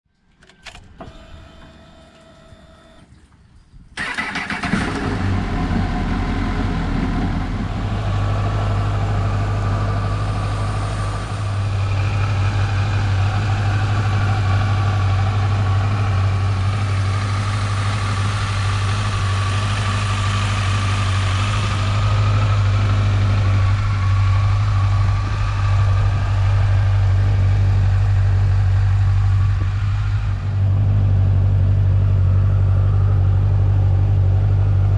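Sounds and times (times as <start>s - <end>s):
motorcycle engine starting and idling: 4.0s - 34.9s.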